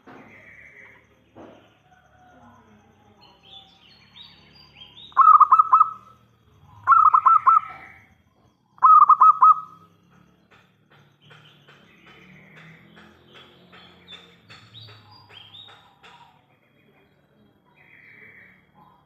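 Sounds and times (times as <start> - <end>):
faint high bird chirps: 0.1 - 10.5
dove cooing: 5.1 - 6.2, 6.8 - 8.0, 8.8 - 9.9.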